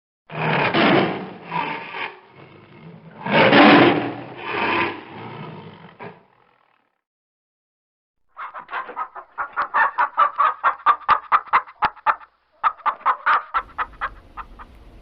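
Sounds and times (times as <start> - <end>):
rough farm animal calls: 8.4 - 15.0.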